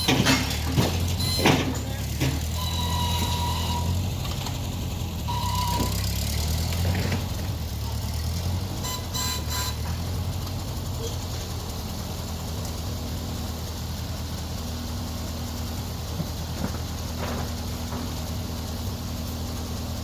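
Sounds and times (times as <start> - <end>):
machine engine running: 0.0 - 20.0
short high tones: 2.6 - 4.0.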